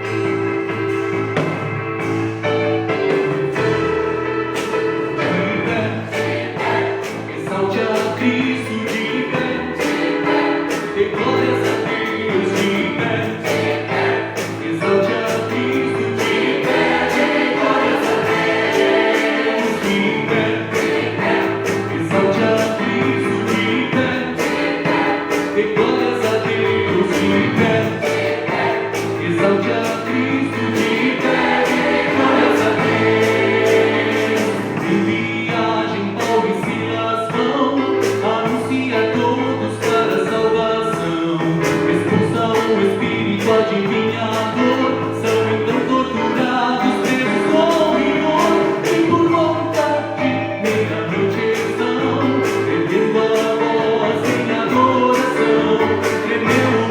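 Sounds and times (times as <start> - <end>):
keyboard accompaniment with beat: 0.0 - 56.9
church choir singing: 3.5 - 37.4, 44.1 - 56.9.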